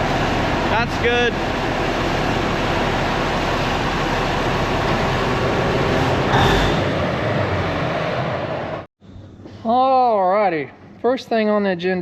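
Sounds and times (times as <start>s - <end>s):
dozer diesel engine running: 0.0s - 8.9s.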